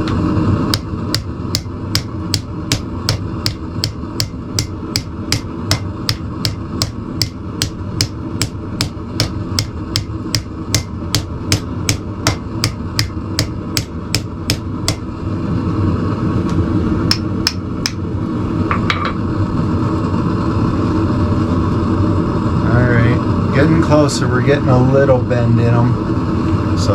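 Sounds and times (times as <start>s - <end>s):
hammer striking hot steel on anvil: 0.0s - 15.1s, 17.1s - 18.0s, 18.7s - 19.2s.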